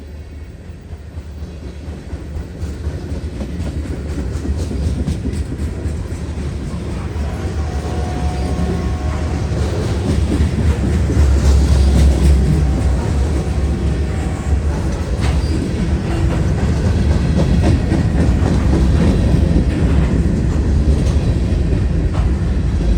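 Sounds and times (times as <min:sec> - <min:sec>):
train rumbling past: 0:00.0 - 0:22.9.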